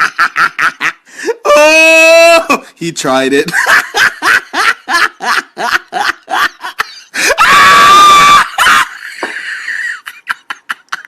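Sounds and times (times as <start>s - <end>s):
loud high scream: 7.2s - 9.0s.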